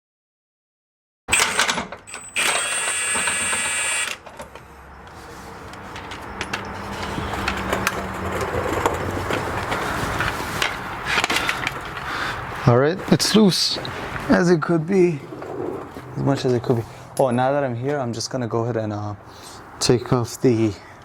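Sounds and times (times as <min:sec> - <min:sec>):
impact wrench motor whine: 0:01.3 - 0:04.2.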